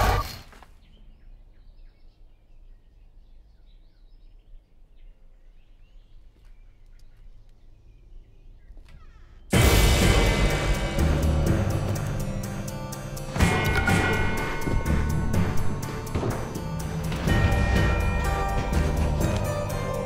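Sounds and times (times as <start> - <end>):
faint bird chirps: 0.0 - 9.5
loud music: 9.5 - 20.0.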